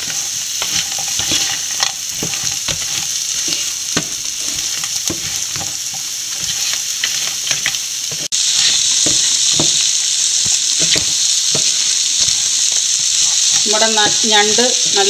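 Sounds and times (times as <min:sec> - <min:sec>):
wooden spatula scraping pan: 0:00.0 - 0:09.8
food sizzling in oil: 0:00.0 - 0:15.0.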